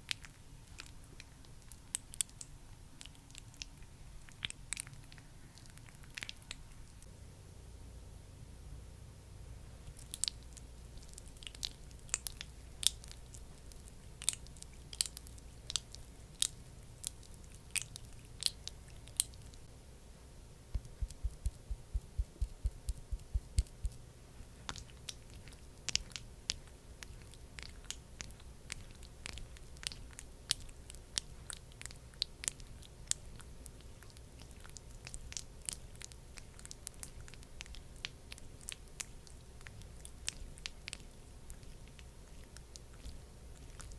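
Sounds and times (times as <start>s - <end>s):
heavier taps: 20.7s - 24.0s
sticky cream clicks and taps: 20.7s - 24.0s.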